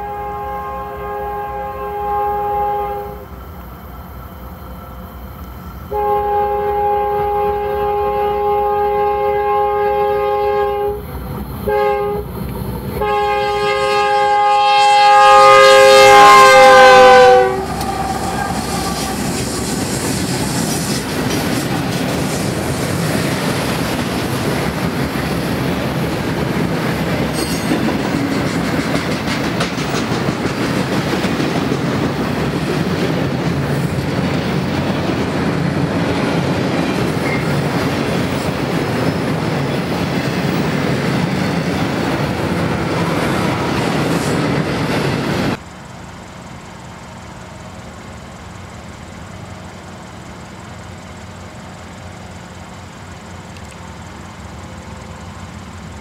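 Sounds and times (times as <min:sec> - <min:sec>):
locomotive air horn: 0:00.0 - 0:03.3, 0:05.9 - 0:19.7
freight cars rolling by: 0:16.2 - 0:56.0.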